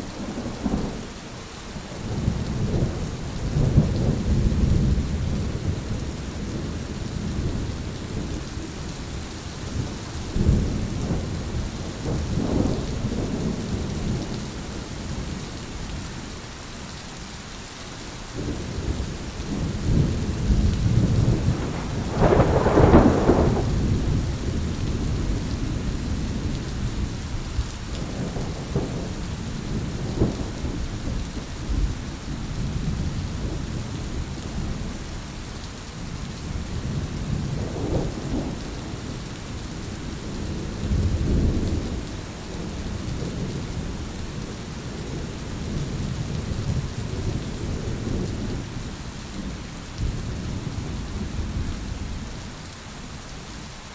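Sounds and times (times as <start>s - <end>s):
heavy rain: 0.0s - 53.9s
rolling thunder: 2.1s - 8.4s, 9.6s - 15.3s, 18.4s - 35.0s, 36.4s - 52.3s
thunder crack: 20.0s - 24.5s.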